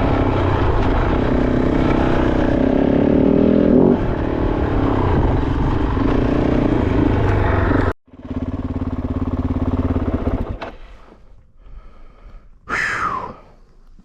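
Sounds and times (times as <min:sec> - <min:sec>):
motorcycle engine idling: 0:06.7 - 0:11.0.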